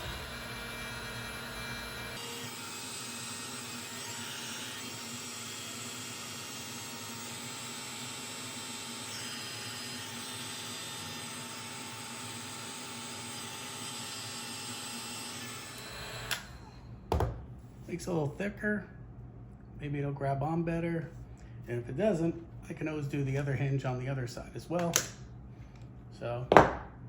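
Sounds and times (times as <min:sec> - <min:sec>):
heat gun blowing: 0:00.0 - 0:05.2.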